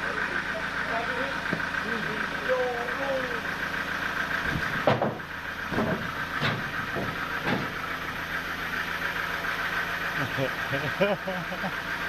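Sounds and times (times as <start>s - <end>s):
sawmill machinery whining hum: 0.0s - 12.0s
sharp knocks: 4.5s - 7.8s.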